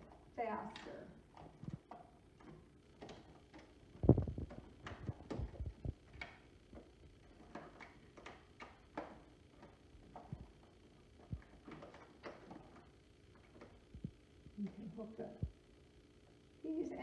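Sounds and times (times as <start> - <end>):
power cord knocking on plastic: 0.6 - 12.8.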